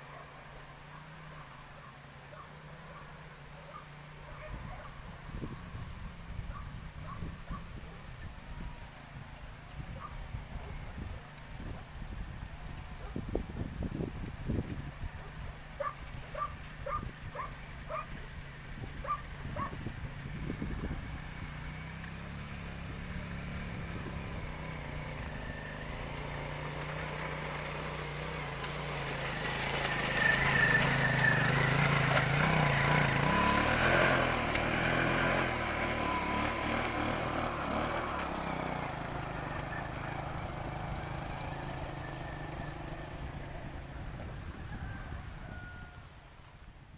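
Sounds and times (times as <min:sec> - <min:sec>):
moped engine running: 0:02.7 - 0:45.5.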